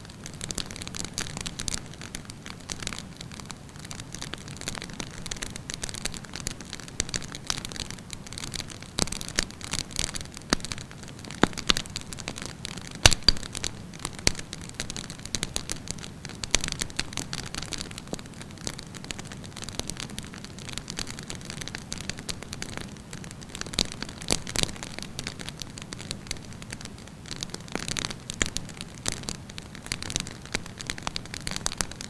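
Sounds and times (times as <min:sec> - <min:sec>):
fire pops and crackles: 0:00.0 - 0:32.0.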